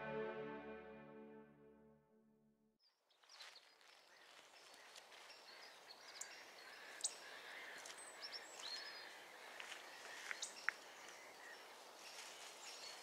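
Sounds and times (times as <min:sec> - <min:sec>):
small birds chirping: 0:02.8 - 0:13.0
faint outdoor ambience: 0:03.2 - 0:13.0.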